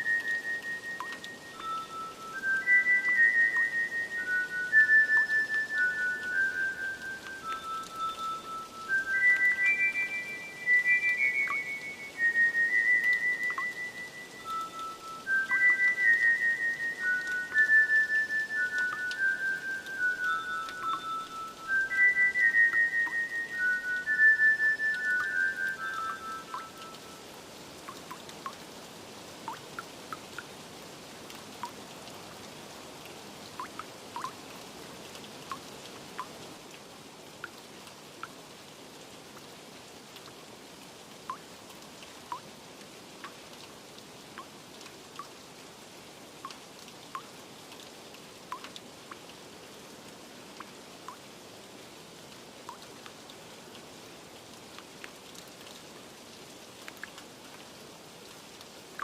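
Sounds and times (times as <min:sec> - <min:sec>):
water drops plinking: 0:00.0 - 0:28.6, 0:33.6 - 0:34.4, 0:41.3 - 0:41.5
steady rain: 0:00.0 - 0:59.0.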